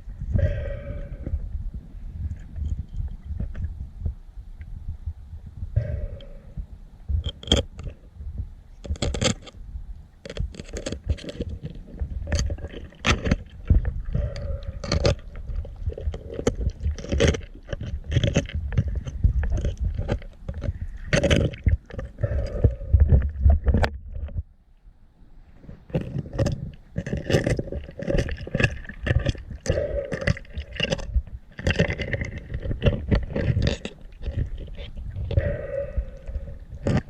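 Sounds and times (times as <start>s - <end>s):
low underwater rumble: 0.0s - 8.9s, 9.6s - 37.0s
underwater knocks clicks and scrapes: 0.0s - 24.5s, 25.5s - 37.0s.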